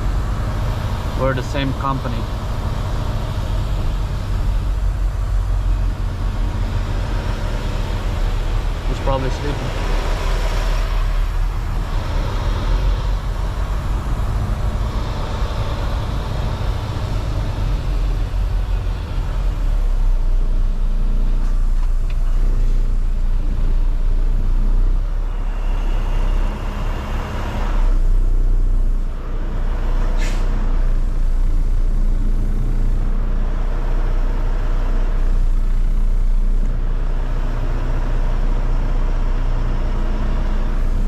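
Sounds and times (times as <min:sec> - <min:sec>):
truck diesel engine humming: 0:00.0 - 0:41.0.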